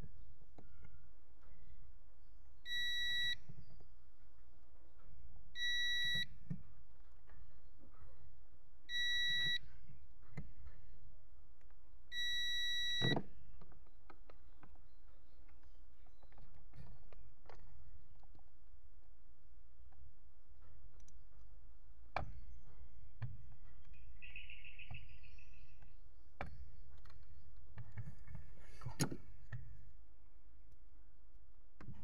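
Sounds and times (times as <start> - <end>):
multimeter continuity beep: 2.7 - 3.4, 5.6 - 6.3, 8.9 - 9.6, 12.1 - 13.2.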